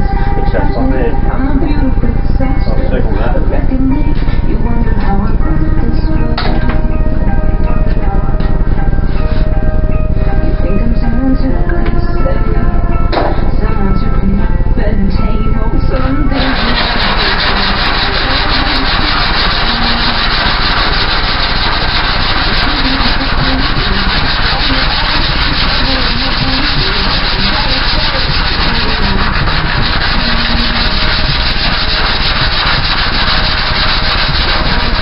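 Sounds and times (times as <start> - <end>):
power sander on metal: 16.3 - 35.0.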